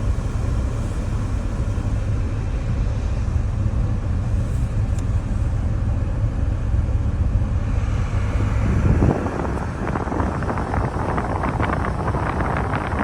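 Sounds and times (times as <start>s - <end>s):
engine running: 0.0s - 13.0s
low rumble inside car cabin: 0.0s - 13.0s
climate control blower rushing air: 7.5s - 13.0s.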